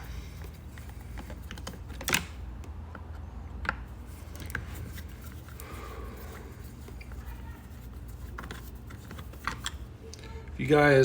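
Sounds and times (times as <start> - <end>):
screwdrivers clicking on parts: 0.0 - 5.7.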